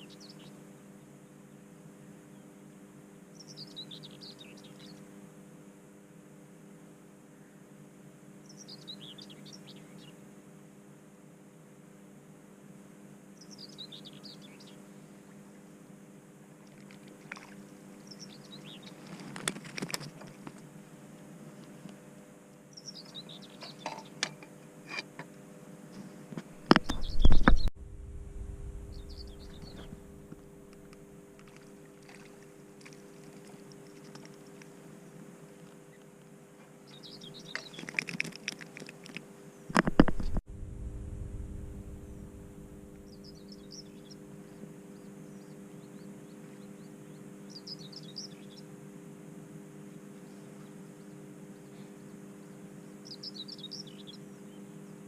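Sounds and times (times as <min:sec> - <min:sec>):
small birds chirping: 0:00.0 - 0:00.6, 0:03.4 - 0:05.1, 0:08.4 - 0:10.2, 0:13.4 - 0:15.6, 0:16.8 - 0:19.3, 0:22.7 - 0:24.2, 0:26.6 - 0:27.7, 0:28.8 - 0:31.6, 0:35.6 - 0:39.7, 0:41.7 - 0:48.7, 0:50.2 - 0:54.8
songbird chirping: 0:22.7 - 0:24.2, 0:28.6 - 0:31.0, 0:36.8 - 0:38.2
low hum: 0:26.0 - 0:35.8, 0:39.7 - 0:44.2.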